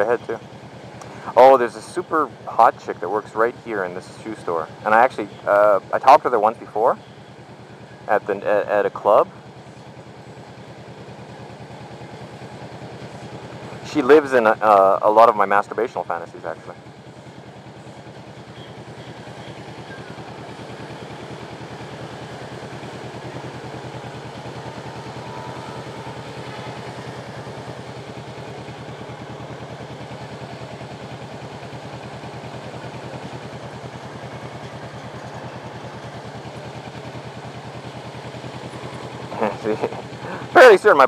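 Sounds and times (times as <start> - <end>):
motorcycle engine running at low revs: 0.0 - 41.0.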